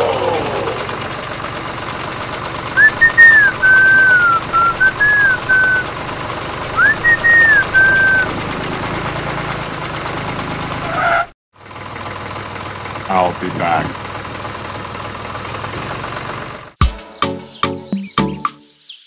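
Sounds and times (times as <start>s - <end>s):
whistled tune: 2.7s - 5.9s, 6.8s - 8.3s, 17.0s - 18.7s.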